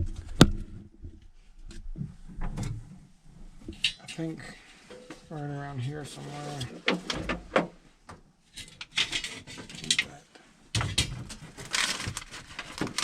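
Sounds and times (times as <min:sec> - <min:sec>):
tools being handled: 0:04.9 - 0:05.3.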